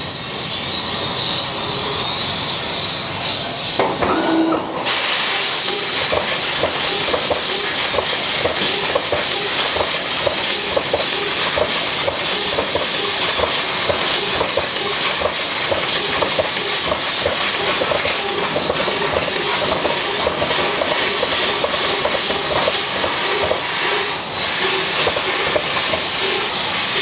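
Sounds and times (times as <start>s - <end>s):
laser cutter gas hiss: 0.0s - 27.0s.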